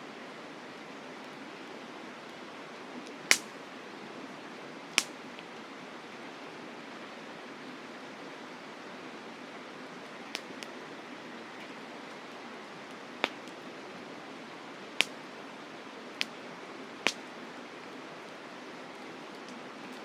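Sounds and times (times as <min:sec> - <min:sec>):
campfire crackling pops: 0:03.3 - 0:03.6, 0:04.9 - 0:05.5, 0:10.3 - 0:10.8, 0:12.9 - 0:13.7, 0:15.0 - 0:15.4, 0:16.1 - 0:16.4, 0:17.0 - 0:18.4.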